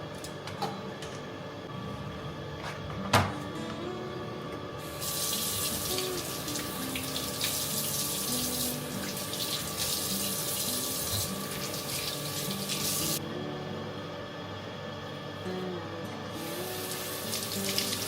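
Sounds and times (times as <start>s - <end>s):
tap water running into sink: 5.0s - 13.2s, 16.8s - 18.0s.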